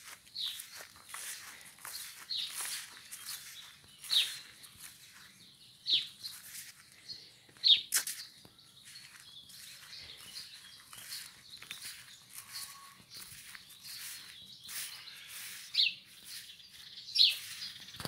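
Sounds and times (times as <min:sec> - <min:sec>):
footsteps through grass: 0:00.0 - 0:18.0.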